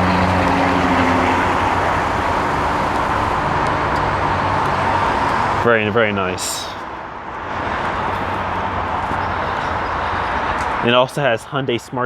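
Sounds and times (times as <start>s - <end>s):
car engine humming: 0.0s - 10.9s
rushing traffic noise: 0.0s - 12.0s.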